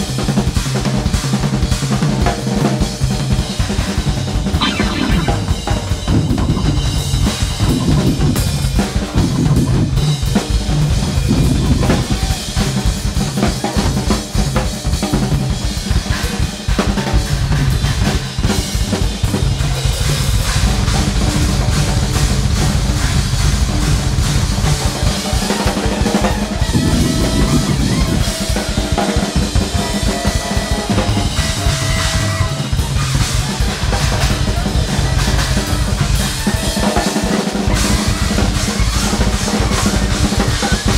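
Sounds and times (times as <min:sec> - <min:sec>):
big band playing jazz: 0:00.0 - 0:40.9
drum kit: 0:00.0 - 0:40.9
bass line: 0:04.6 - 0:10.3, 0:26.3 - 0:29.1.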